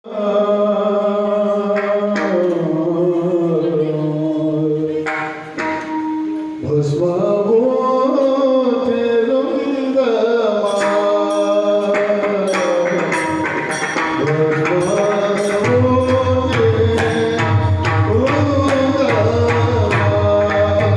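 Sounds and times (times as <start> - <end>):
man singing devotional song: 0.0 - 5.4, 6.6 - 20.9
harmonium accompaniment: 0.2 - 20.9
drum strokes: 10.7 - 20.9.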